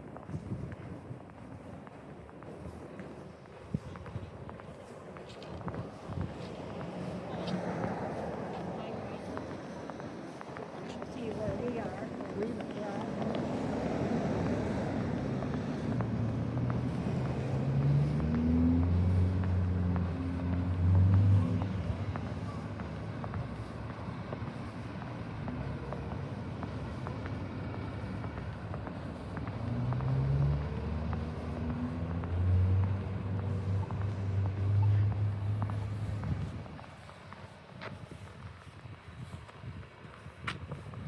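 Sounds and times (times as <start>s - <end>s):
cars accelerating past: 13.0s - 36.6s.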